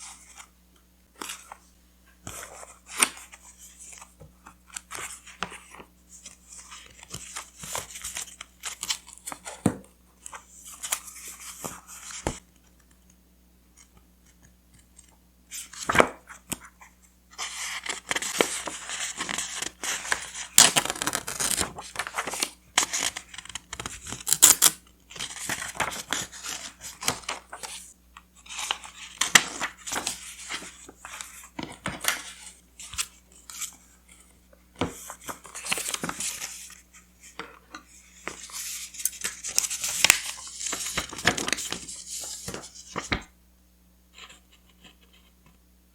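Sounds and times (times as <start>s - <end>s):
paper rustling and tearing: 19.2s - 23.1s, 23.8s - 27.8s.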